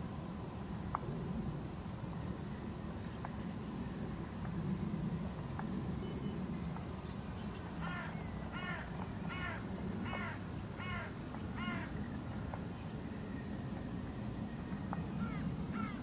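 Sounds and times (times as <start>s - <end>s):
bird calling: 7.4s - 12.0s, 15.2s - 16.0s.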